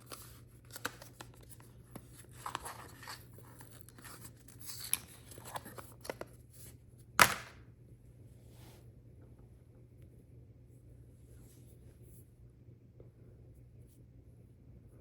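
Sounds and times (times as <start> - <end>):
packaging clicks and rustles: 0.0 - 6.3.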